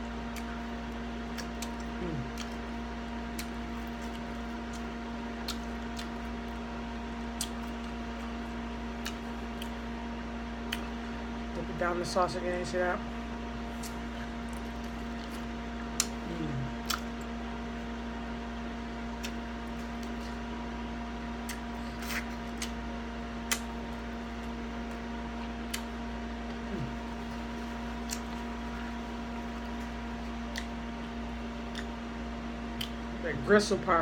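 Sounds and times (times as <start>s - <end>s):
steady electrical hum: 0.0s - 34.0s
wet mouth clicks and smacks chewing: 0.3s - 2.7s, 3.3s - 6.4s, 7.3s - 8.4s, 9.0s - 9.8s, 10.6s - 11.0s, 13.7s - 16.2s, 16.8s - 17.3s, 19.1s - 20.4s, 21.4s - 22.8s, 23.4s - 25.0s, 25.7s - 26.0s, 27.9s - 28.9s, 29.6s - 30.8s, 31.6s - 32.0s, 32.8s - 33.1s.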